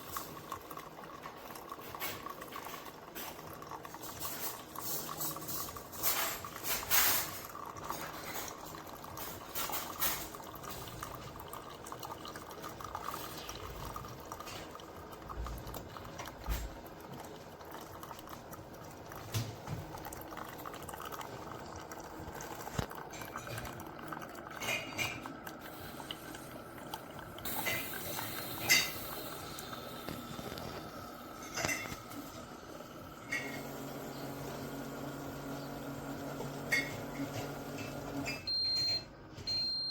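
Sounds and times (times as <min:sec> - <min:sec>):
water gurgling into a cup: 0:00.0 - 0:38.4
dishes clicking and tapping: 0:22.6 - 0:25.6, 0:27.6 - 0:29.2, 0:30.1 - 0:32.4, 0:36.6 - 0:39.6.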